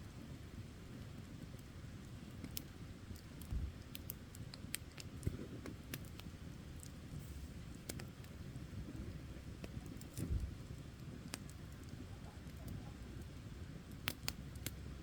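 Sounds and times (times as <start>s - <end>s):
low fire rumble: 0.0s - 15.0s
campfire pops and snaps: 1.0s - 15.0s.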